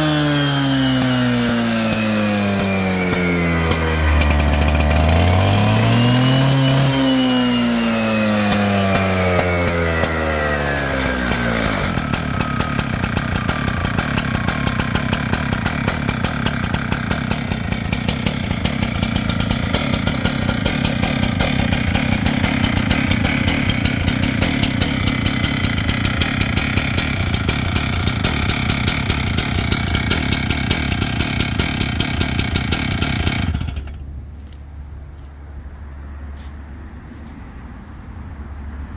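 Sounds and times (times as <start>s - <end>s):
cut-off saw engine revving: 0.0s - 34.0s.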